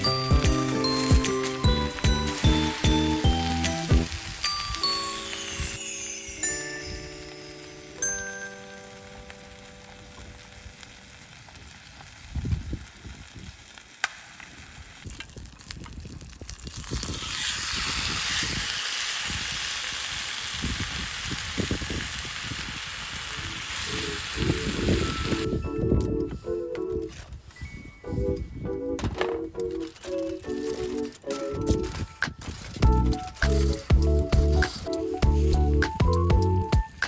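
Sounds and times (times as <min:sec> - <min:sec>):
food sizzling in a pan: 0:00.0 - 0:11.4.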